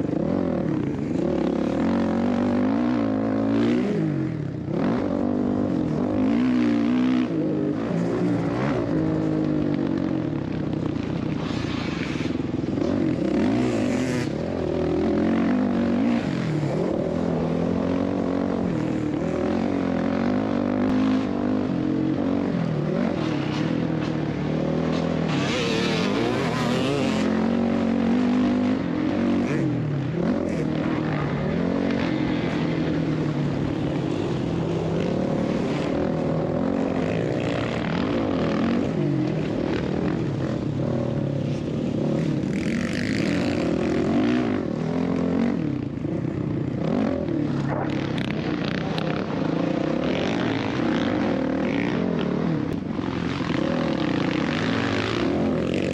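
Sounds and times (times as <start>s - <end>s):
dirt bike engine revving: 24.4s - 40.7s.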